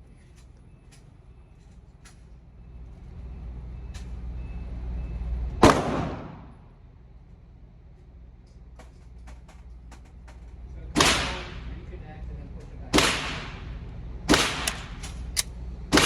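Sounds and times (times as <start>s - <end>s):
distant gunshots: 5.6s - 6.5s, 12.9s - 13.6s, 14.3s - 15.0s
loud pistol shot echoing: 5.6s - 6.5s.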